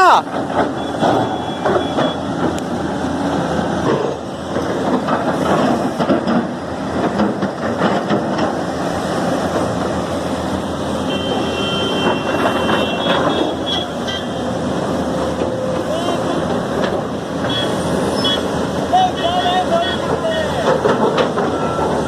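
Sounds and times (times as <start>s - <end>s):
heavy construction machinery running: 0.0s - 22.0s
metal clanks and clatter: 3.9s - 8.6s, 20.6s - 21.6s.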